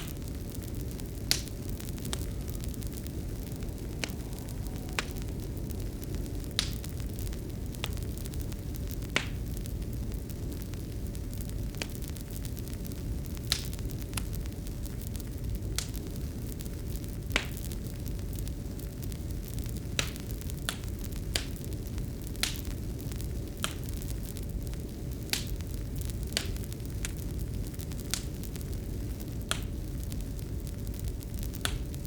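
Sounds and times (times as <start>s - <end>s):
low rumble: 0.0s - 14.1s
faint constant hum: 0.0s - 32.0s
wood fire crackling: 0.0s - 32.0s.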